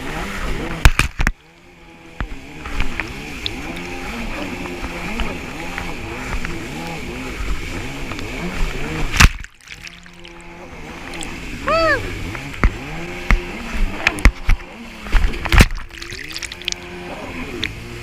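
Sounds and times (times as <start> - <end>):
jet ski engine revving: 0.0 - 9.2, 9.8 - 18.0
hull splashing against water: 8.4 - 11.6, 12.5 - 18.0.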